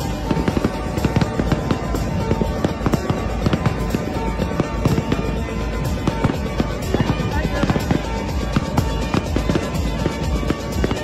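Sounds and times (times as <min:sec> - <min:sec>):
fireworks bangs and crackles: 0:00.0 - 0:11.0
dance music: 0:05.2 - 0:11.0.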